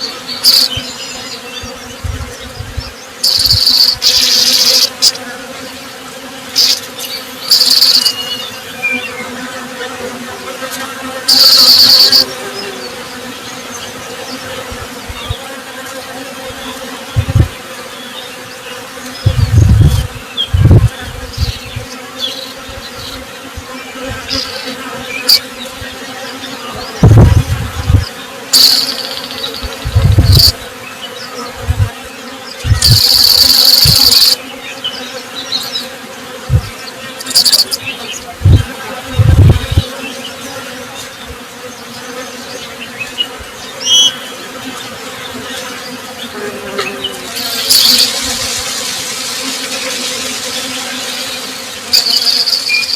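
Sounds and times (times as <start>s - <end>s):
bees buzzing: 0.0s - 52.9s
high-pitched hiss bursts: 0.4s - 0.9s, 3.2s - 5.2s, 6.6s - 8.3s, 11.3s - 12.3s, 28.5s - 30.6s, 32.7s - 34.4s, 37.2s - 37.8s, 47.3s - 52.9s.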